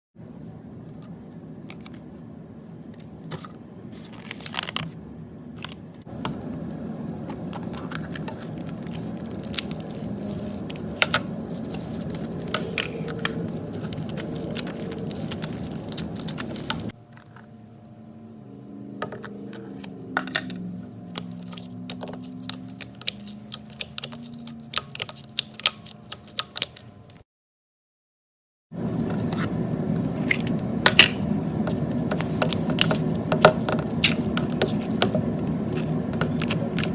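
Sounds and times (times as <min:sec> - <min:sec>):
hands squishing slime: 0:21.2 - 0:26.8.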